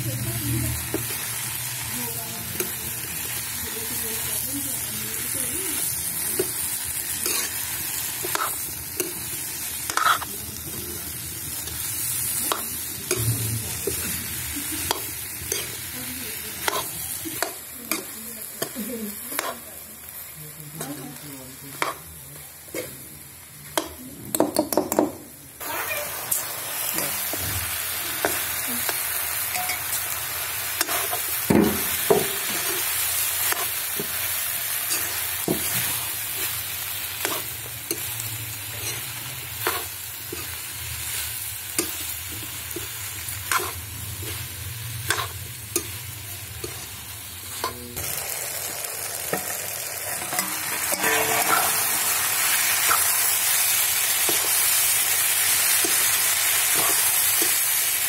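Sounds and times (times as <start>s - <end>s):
food sizzling in a pan: 0.0s - 24.3s, 25.6s - 58.0s
metal ladle scraping pan: 49.3s - 53.3s.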